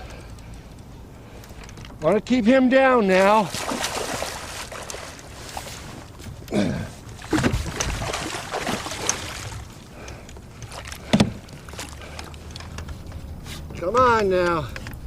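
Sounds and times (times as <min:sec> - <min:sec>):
water splashing against kayak: 0:03.1 - 0:13.0.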